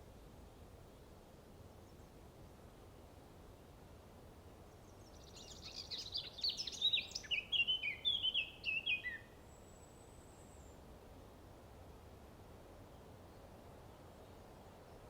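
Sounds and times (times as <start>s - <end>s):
songbird singing chirps: 4.3s - 11.0s.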